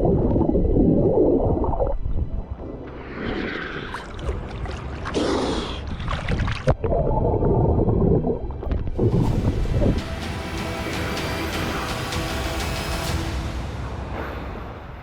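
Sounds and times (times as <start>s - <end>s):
seawater sloshing and gurgling: 0.0s - 10.0s.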